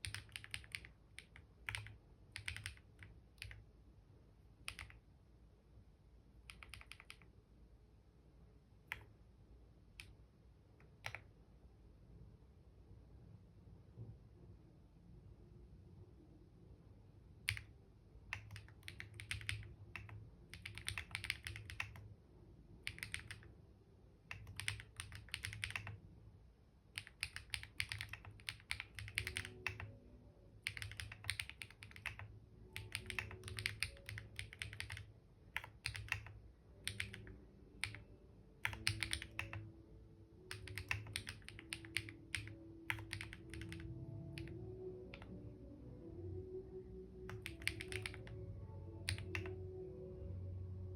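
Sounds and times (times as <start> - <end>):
computer keyboard typing: 0.0 - 3.7, 4.6 - 5.0, 6.5 - 7.3, 8.9 - 9.1, 10.8 - 11.3, 17.4 - 22.1, 22.8 - 23.5, 24.3 - 26.0, 26.9 - 30.0, 30.6 - 39.8, 40.4 - 45.3, 47.3 - 48.4, 49.0 - 49.6.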